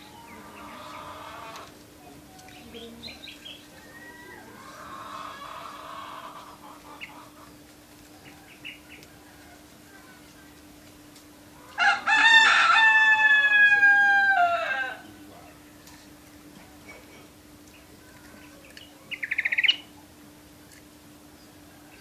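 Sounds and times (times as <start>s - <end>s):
rooster crowing: 3.8s - 6.6s, 8.2s - 10.3s, 11.6s - 15.1s.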